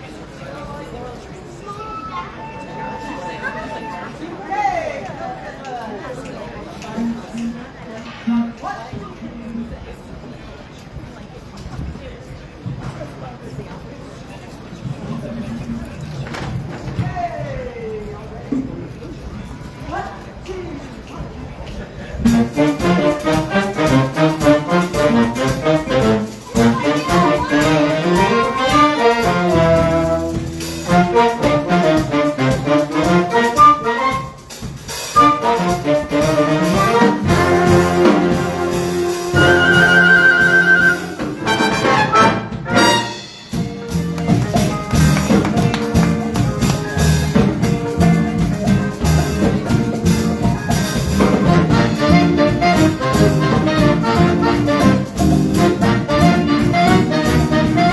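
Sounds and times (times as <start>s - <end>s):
jazz big band playing: 1.8s - 4.5s, 6.6s - 8.9s, 22.2s - 57.9s.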